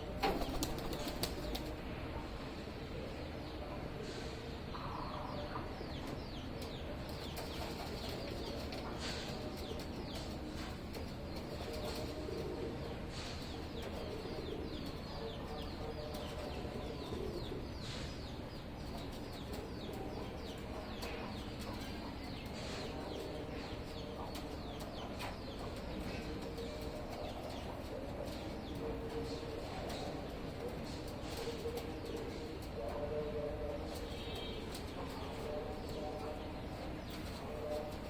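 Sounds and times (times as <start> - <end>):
pigeons cooing: 7.5 - 18.0.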